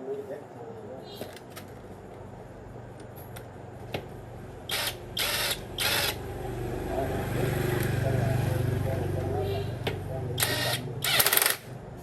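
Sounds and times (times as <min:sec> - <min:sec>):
loud noisy tool bursts: 0:04.7 - 0:06.3, 0:10.4 - 0:11.7.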